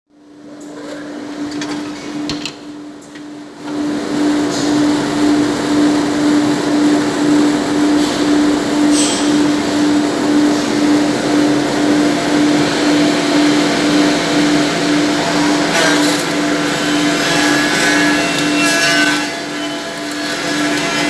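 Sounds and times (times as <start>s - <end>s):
cutter spindle humming: 12.8s - 21.0s
cutter milling wood rushing: 13.6s - 21.0s.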